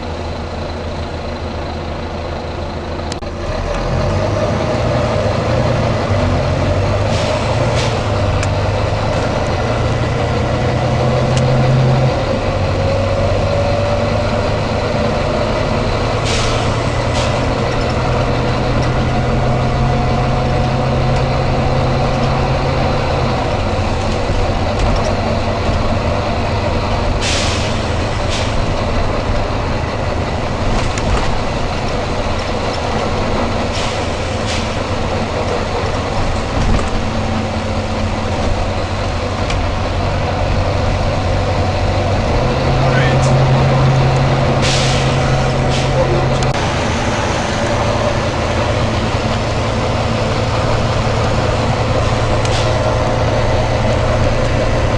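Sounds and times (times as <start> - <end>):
bus diesel engine running: 0.0 - 54.9
air brake hisses: 16.2 - 17.5, 27.2 - 28.7, 33.7 - 34.8, 44.6 - 46.0.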